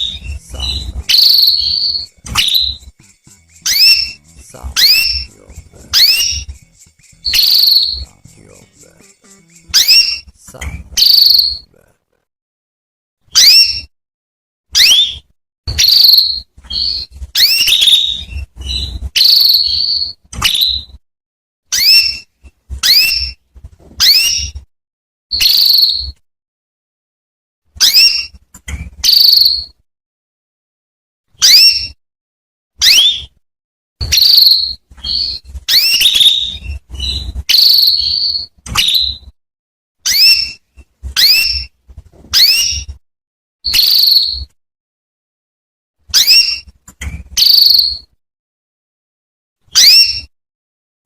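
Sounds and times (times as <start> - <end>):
canary chirping: 0.0 - 11.9, 13.3 - 13.9, 14.8 - 21.0, 21.7 - 24.6, 25.3 - 26.2, 27.8 - 29.8, 31.4 - 32.0, 32.8 - 33.4, 34.0 - 39.3, 40.0 - 43.0, 43.7 - 44.6, 46.1 - 48.2, 49.7 - 50.3.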